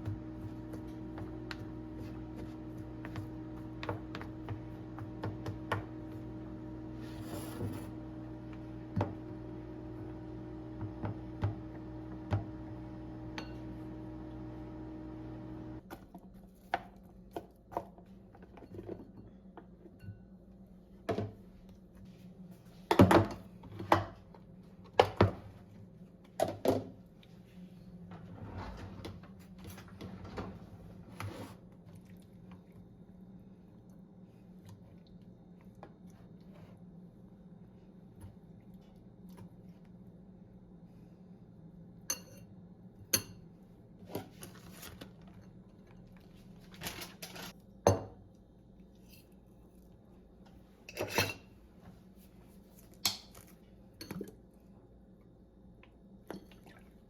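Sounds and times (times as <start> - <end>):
appliance hum: 0.0 - 16.0.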